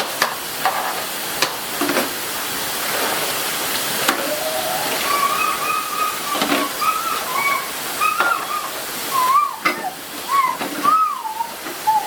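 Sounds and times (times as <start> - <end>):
steady rain: 0.0 - 12.0
faint wavering call: 4.0 - 12.0.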